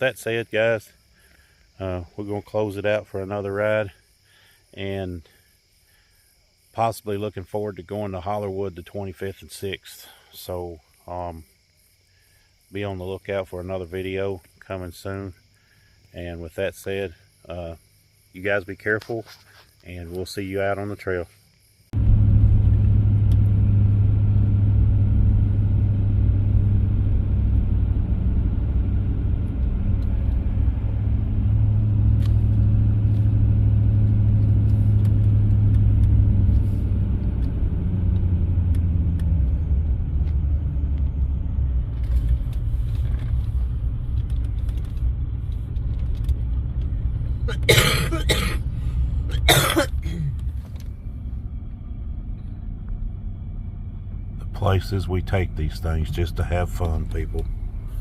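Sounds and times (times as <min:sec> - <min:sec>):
vehicle engine rumbling: 0:16.0 - 0:58.0.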